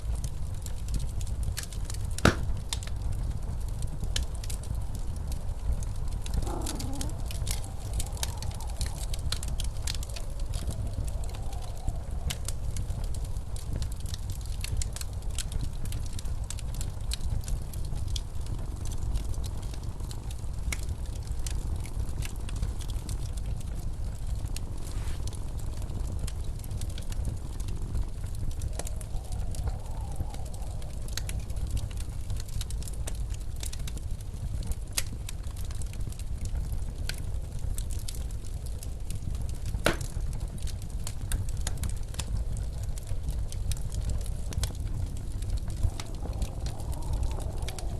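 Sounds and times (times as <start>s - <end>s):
fireplace crackling: 0.0s - 47.9s
blizzard wind rushing: 3.0s - 15.7s, 27.2s - 33.4s, 42.6s - 47.9s.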